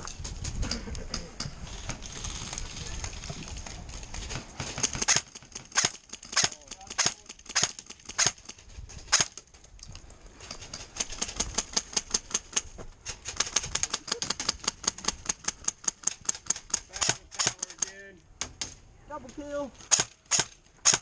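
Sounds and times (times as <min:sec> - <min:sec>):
airsoft gun firing: 0:04.6 - 0:08.5, 0:19.9 - 0:21.0.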